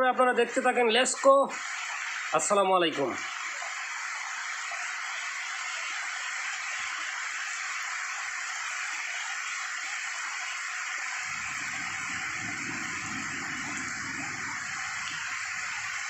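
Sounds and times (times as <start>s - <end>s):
heavy rain falling: 0.5s - 16.0s
low rumble: 11.3s - 15.3s.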